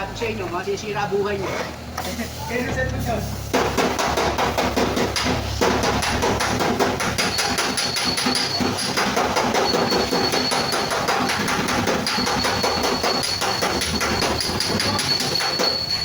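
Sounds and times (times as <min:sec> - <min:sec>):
high ringing sheet metal: 0:05.2 - 0:16.0.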